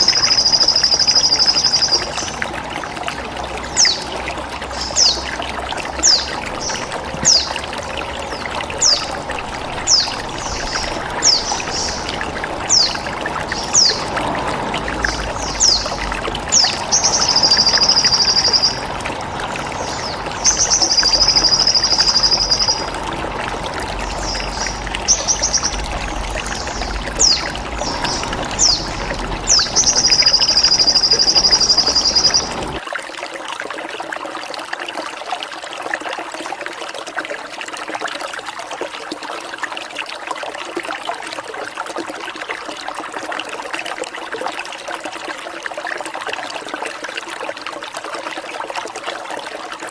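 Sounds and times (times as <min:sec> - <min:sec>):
songbird chirping: 0:00.0 - 0:02.4, 0:03.6 - 0:32.8
trickling water: 0:00.0 - 0:49.9.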